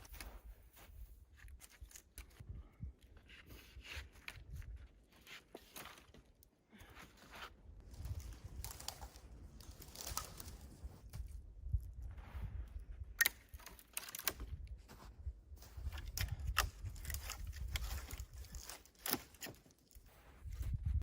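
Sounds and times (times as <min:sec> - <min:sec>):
crunching and scraping in snow: 0:00.0 - 0:02.1, 0:06.9 - 0:11.4, 0:14.8 - 0:21.0.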